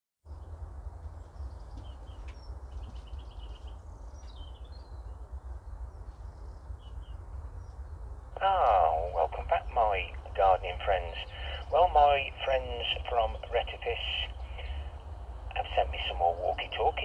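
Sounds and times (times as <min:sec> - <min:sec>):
small birds chirping: 0:00.3 - 0:17.0
steady low rumble: 0:00.3 - 0:17.0
bird trill: 0:01.2 - 0:05.2.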